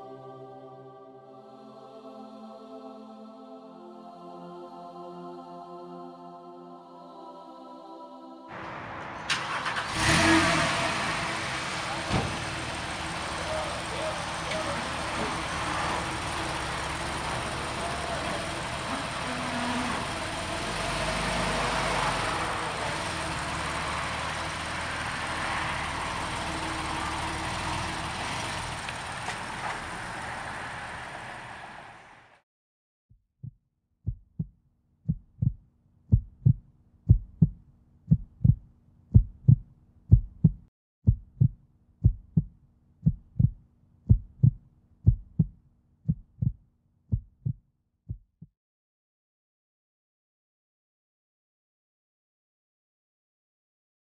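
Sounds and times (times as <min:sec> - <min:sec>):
car engine running: 0:09.3 - 0:32.3
thumping beat: 0:33.4 - 0:34.5, 0:35.1 - 0:38.6, 0:39.2 - 0:48.5.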